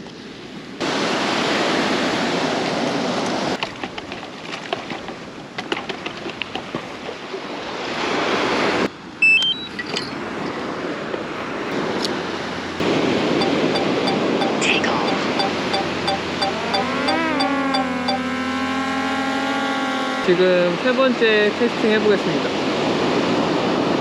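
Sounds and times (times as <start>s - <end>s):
surf washing on beach: 0.0s - 5.6s, 6.4s - 9.0s, 10.2s - 16.9s, 19.6s - 24.0s
high beeps stepping upward: 12.8s - 19.0s
wind on microphone: 22.2s - 24.0s.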